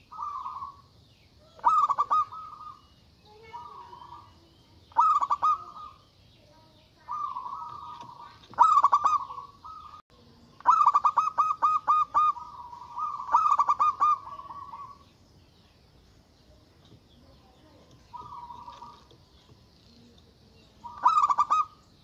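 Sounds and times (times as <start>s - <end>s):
dove cooing: 0.0s - 6.1s, 7.0s - 10.0s, 10.6s - 15.1s, 17.6s - 19.3s, 20.0s - 21.8s.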